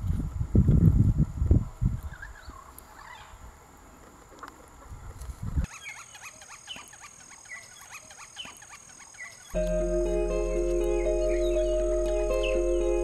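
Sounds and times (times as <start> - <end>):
steady high-pitched tone: 9.6 - 13.0.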